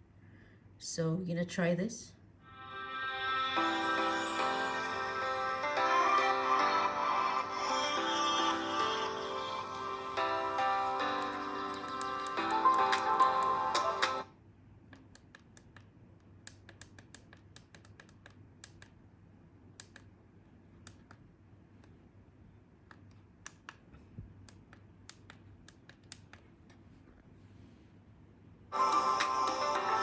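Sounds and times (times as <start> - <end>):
fingers tapping a device: 16.5 - 18.9, 24.5 - 26.8.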